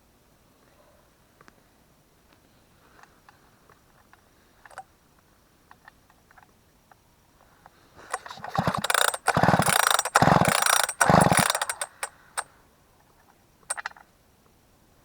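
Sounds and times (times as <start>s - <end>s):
short rattle: 8.0s - 12.5s
chainsaw being pull-started: 8.1s - 12.5s.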